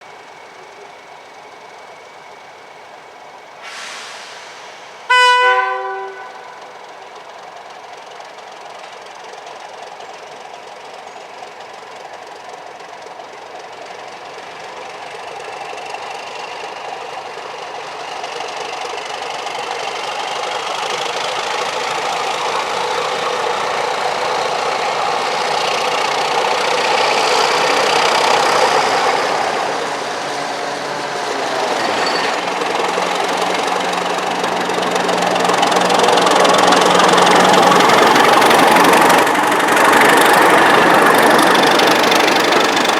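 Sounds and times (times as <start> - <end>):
train locomotive engine approaching: 0.0 - 42.9
high wheel squeal: 20.5 - 42.9.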